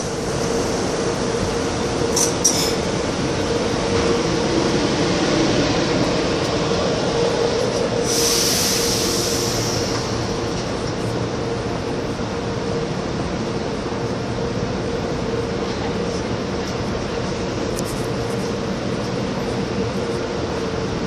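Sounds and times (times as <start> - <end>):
train equipment humming and whining: 0.0 - 21.0
loud hiss: 8.0 - 10.4.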